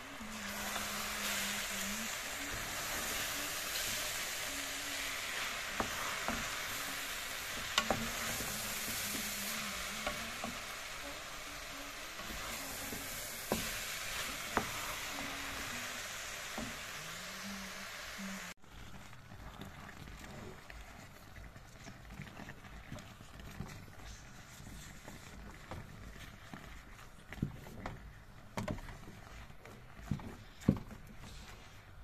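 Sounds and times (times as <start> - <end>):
food sizzling in a metal pot: 0.0 - 18.8.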